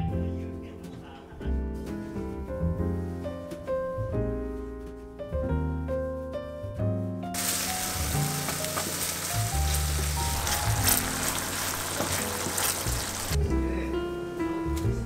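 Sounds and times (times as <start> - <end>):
piano music: 0.0 - 15.0
food frying in oil: 7.4 - 13.4.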